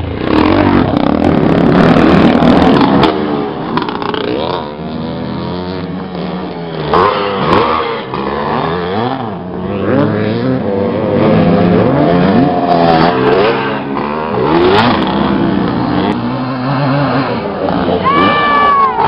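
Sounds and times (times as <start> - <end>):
motorbike engines revving: 0.0 - 19.0.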